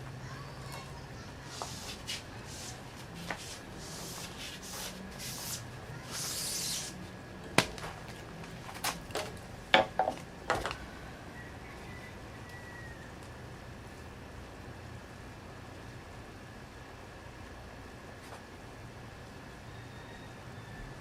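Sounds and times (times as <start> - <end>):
hissing rubbing swishes: 1.4 - 7.0.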